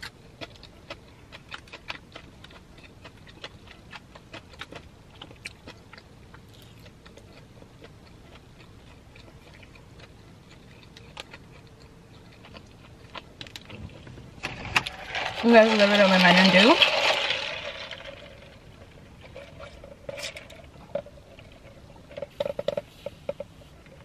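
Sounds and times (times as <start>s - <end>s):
chewing with wet mouth clicks: 0.0s - 14.0s.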